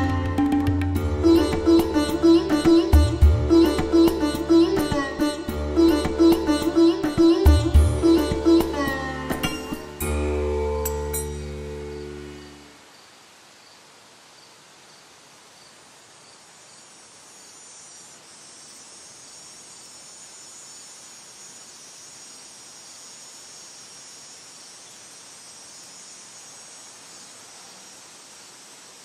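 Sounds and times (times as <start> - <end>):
music: 0.0 - 12.7
high hiss: 1.0 - 29.0
insects chirring: 1.2 - 10.1, 10.7 - 29.0.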